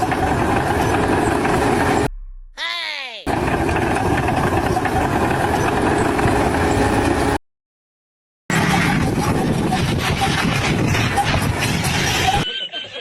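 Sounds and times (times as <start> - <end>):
loud machinery noise: 0.0 - 2.1, 3.3 - 7.4, 8.5 - 12.5.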